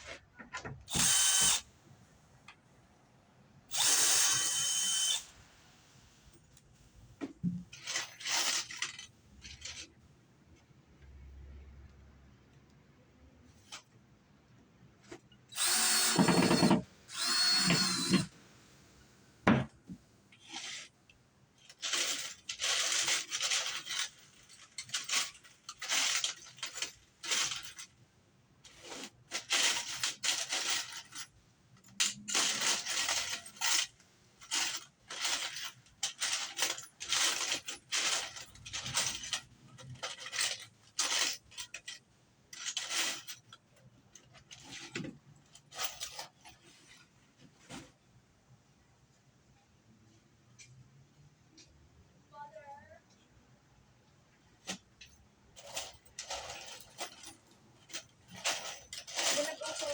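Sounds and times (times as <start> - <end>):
power tool whine: 0.9 - 1.6, 3.7 - 5.4, 15.5 - 18.7.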